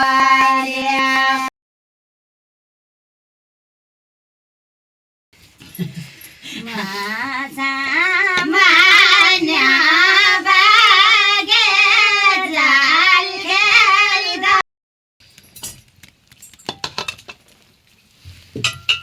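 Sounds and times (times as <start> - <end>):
high-pitched voice singing: 0.0 - 1.5, 6.6 - 14.6.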